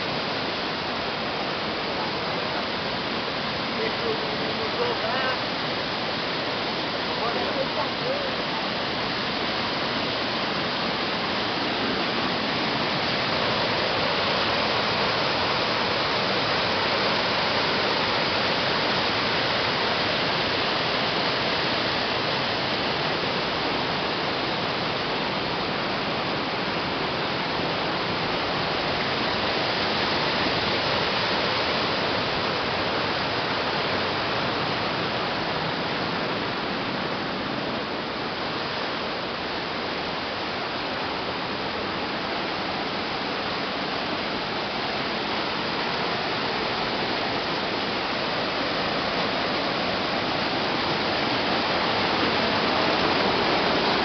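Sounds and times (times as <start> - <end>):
waterfall pouring: 0.0 - 35.4.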